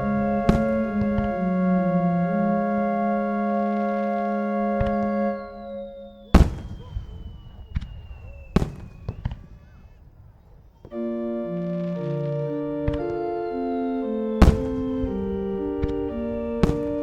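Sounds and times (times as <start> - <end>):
fireworks bangs: 0.0 - 2.7, 4.8 - 11.0, 14.3 - 17.0
organ-like music: 0.0 - 9.1, 10.8 - 17.0
small firework cracks: 6.2 - 10.9, 14.4 - 17.0.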